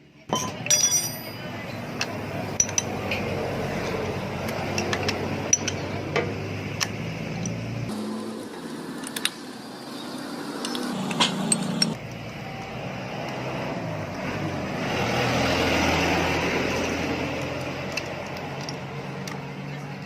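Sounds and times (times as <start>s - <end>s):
metallic clinks of hand tools: 0.3s - 1.7s
passing motor vehicle: 1.4s - 20.0s.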